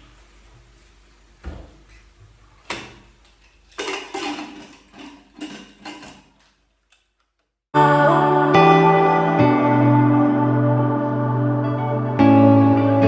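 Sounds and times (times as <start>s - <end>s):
metal pot and lid clanking: 3.7s - 6.4s
music: 7.8s - 13.0s.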